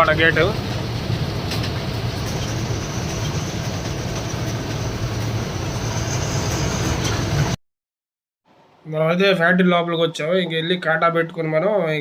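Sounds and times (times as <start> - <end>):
road noise and rattle: 0.0 - 7.6.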